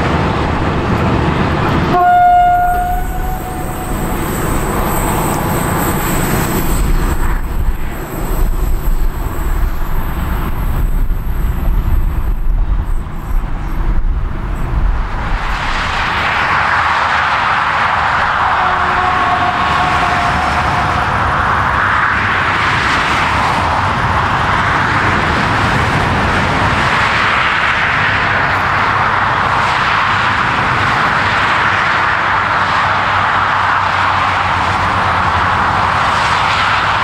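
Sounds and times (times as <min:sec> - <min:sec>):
vehicle passing on motorway: 0:00.0 - 0:12.8, 0:13.9 - 0:37.0
train rolling along track: 0:00.0 - 0:37.0
train horn blast: 0:01.8 - 0:06.2, 0:18.4 - 0:21.3.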